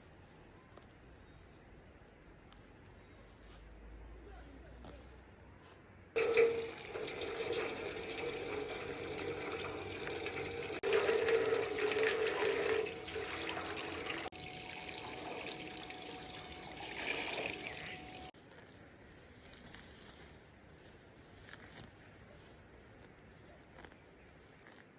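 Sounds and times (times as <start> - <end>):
water pouring and splashing: 6.2 - 18.4.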